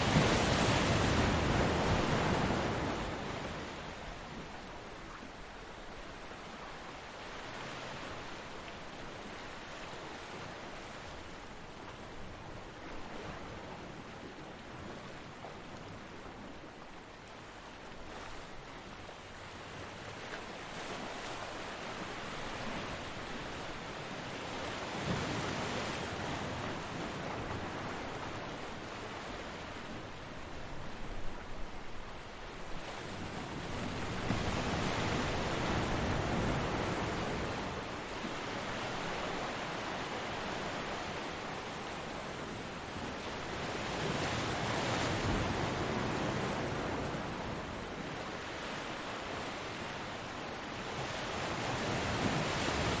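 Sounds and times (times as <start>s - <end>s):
ocean wave breaking: 0.0s - 3.5s
waves breaking on a beach: 0.0s - 53.0s.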